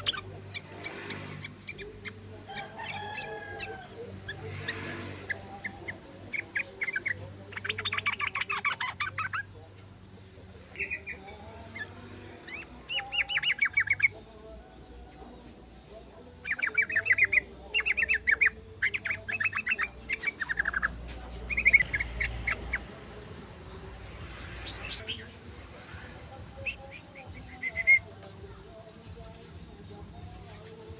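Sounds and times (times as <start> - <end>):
bird chattering in rapid trills: 0.0 - 9.6, 16.4 - 22.9.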